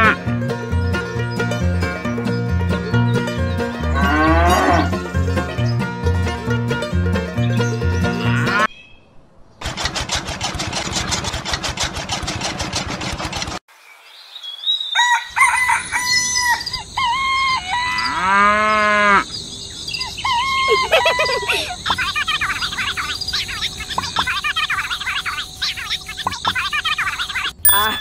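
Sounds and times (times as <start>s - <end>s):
small motor clicking rapidly: 9.6s - 13.6s
rooster crowing: 14.9s - 18.3s.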